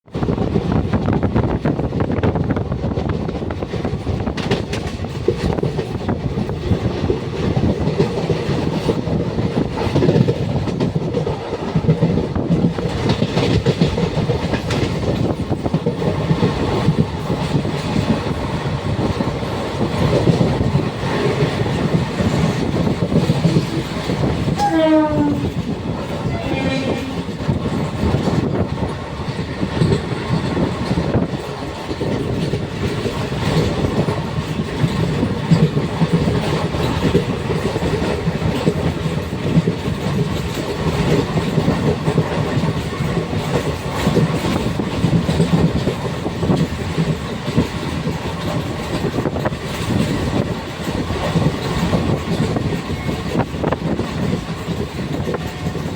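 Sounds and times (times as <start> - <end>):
train rumbling on rails: 0.0 - 55.9
train horn: 24.5 - 27.5.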